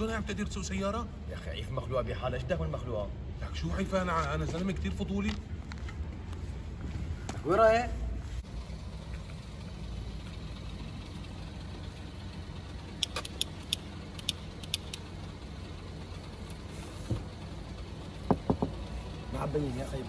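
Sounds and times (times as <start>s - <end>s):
suv engine idling: 5.4s - 20.0s
sharp light clicks: 12.9s - 15.1s.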